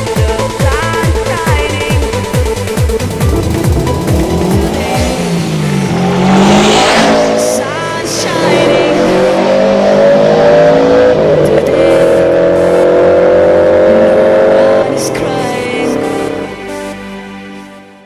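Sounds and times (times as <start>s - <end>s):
car engine accelerating hard: 2.1s - 16.6s.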